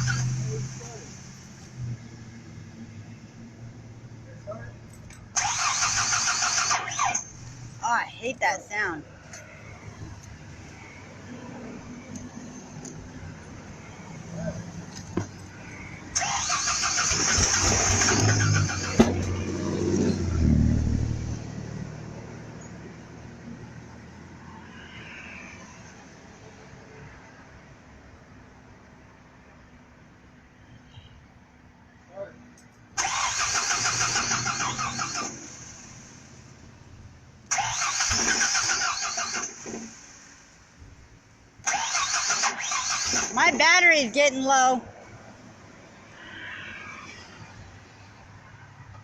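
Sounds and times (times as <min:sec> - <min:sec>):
truck starter cranking: 0:00.0 - 0:01.2, 0:04.9 - 0:07.8, 0:14.9 - 0:19.5, 0:33.0 - 0:36.1, 0:37.4 - 0:40.4, 0:41.6 - 0:43.9
engine low rumble: 0:00.0 - 0:26.1, 0:28.5 - 0:43.5.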